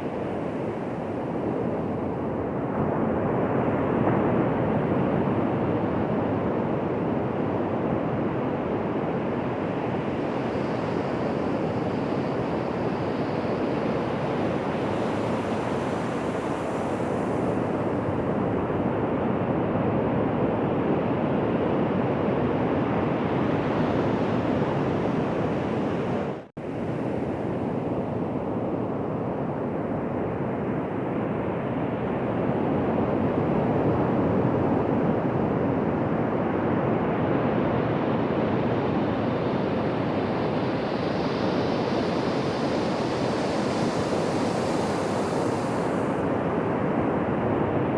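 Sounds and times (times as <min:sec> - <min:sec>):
ocean waves washing onto beach: 0:37.4 - 0:47.8.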